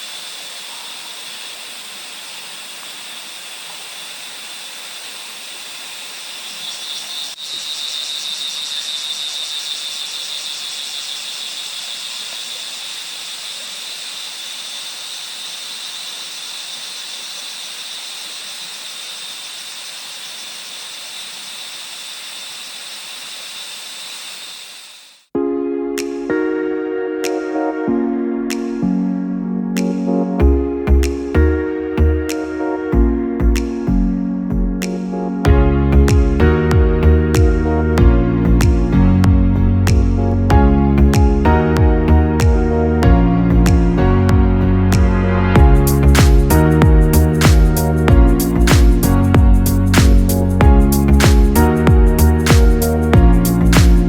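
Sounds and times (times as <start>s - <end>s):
background hiss: 0.0s - 25.3s
high-pitched insect drone: 0.0s - 25.3s, 45.6s - 53.8s.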